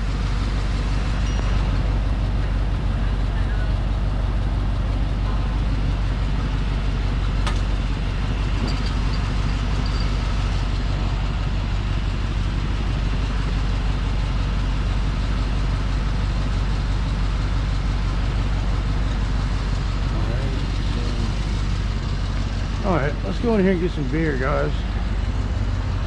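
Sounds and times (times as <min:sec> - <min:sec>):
motorcycle engine running: 0:17.8 - 0:26.0.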